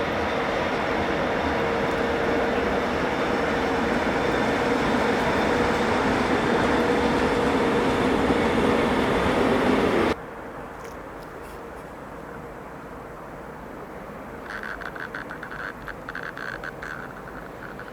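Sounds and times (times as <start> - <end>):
train wheels on rail: 0.0 - 10.2.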